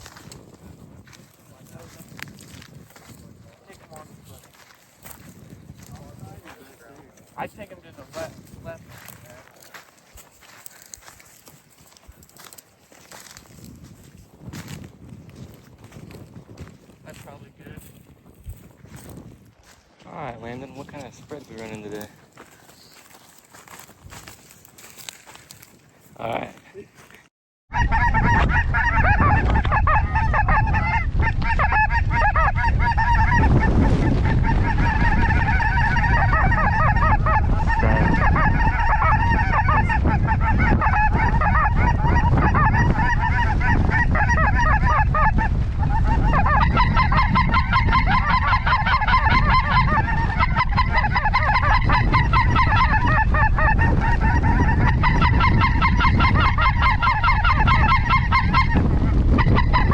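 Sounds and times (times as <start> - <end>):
wind rumble on microphone: 0.0 - 26.6, 27.7 - 59.9
geese honking: 27.7 - 59.9.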